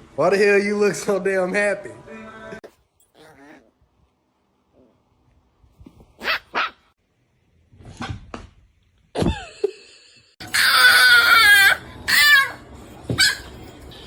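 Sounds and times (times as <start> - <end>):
dog yipping: 3.1 - 3.7, 6.2 - 6.9, 10.5 - 13.7
dog whining howl: 10.4 - 12.6.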